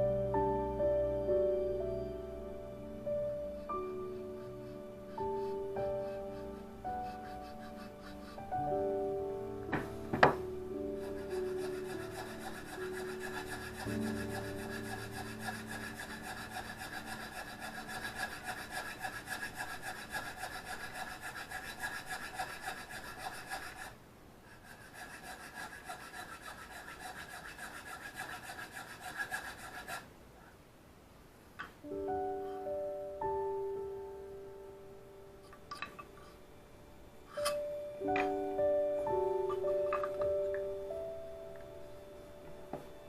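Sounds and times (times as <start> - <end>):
piano music: 0.0 - 23.8, 31.8 - 43.0
blade grinding on sharpening stone: 5.4 - 8.5, 11.0 - 30.0, 37.3 - 37.6.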